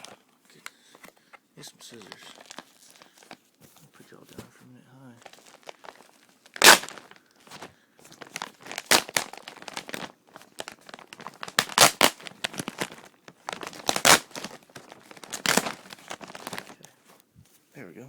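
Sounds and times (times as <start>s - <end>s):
plastic package crinkling and tearing: 0.0s - 0.8s, 1.6s - 3.4s, 5.1s - 16.9s.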